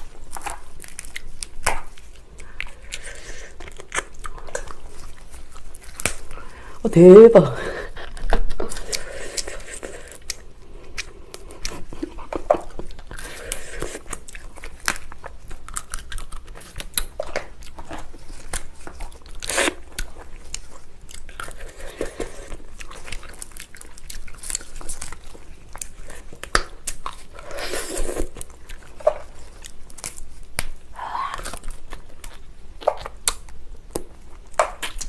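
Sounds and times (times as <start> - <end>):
chewing and crunching lobster: 0.0 - 7.2, 7.9 - 35.0.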